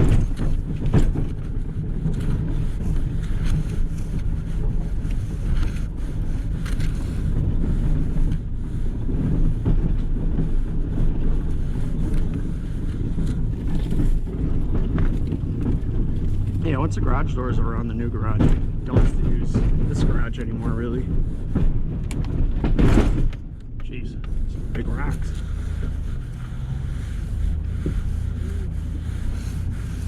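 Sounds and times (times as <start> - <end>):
plow engine droning: 0.0 - 30.0.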